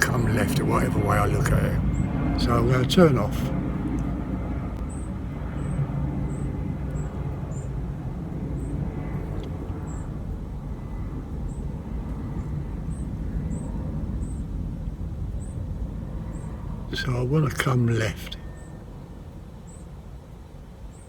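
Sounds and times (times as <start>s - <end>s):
low outdoor rumble: 0.0s - 21.0s
faint high-pitched chirp: 18.0s - 19.0s.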